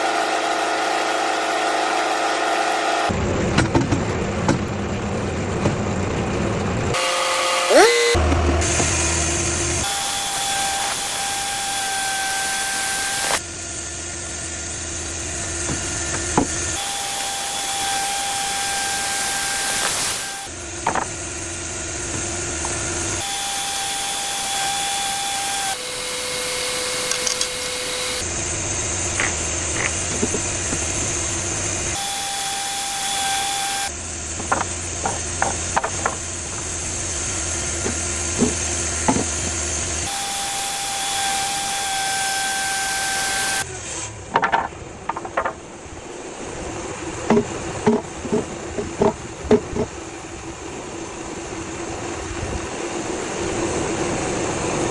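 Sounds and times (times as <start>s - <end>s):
sharp knocks and clunks: 3.4s - 4.8s, 5.6s - 5.9s, 15.6s - 16.8s, 20.8s - 21.2s, 29.1s - 31.0s, 34.3s - 36.7s, 37.8s - 39.6s, 44.3s - 45.8s, 47.2s - 50.0s
band saw hissing: 5.4s - 54.9s.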